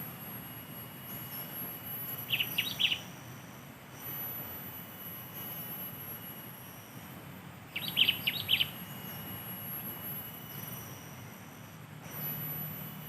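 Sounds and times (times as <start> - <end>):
bird chirping: 2.2 - 3.1, 7.7 - 8.8.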